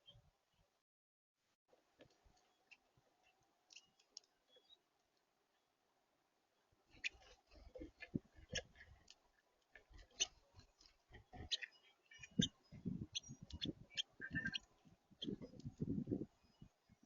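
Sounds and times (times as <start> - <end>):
bird pecking at seed: 6.9 - 15.8.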